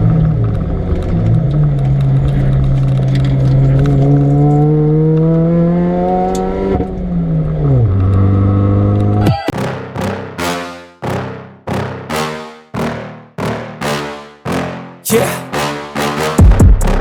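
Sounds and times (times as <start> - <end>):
car engine revving at full throttle: 0.4 - 9.2.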